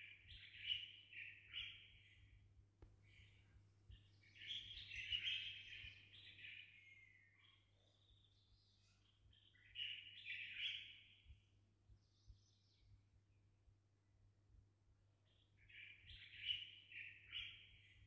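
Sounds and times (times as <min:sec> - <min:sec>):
faint bird chirping: 0:00.0 - 0:13.7, 0:15.1 - 0:18.0.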